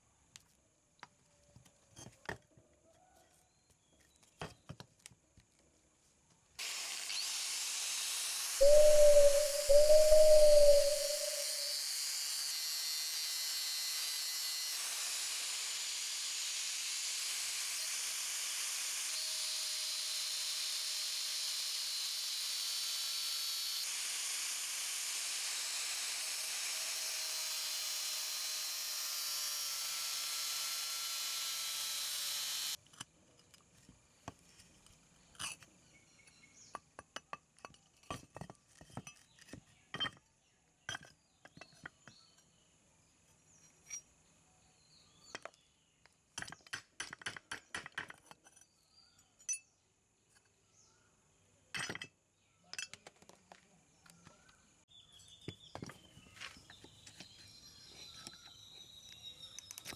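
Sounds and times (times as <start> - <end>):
angle grinder grinding metal: 6.6 - 32.8.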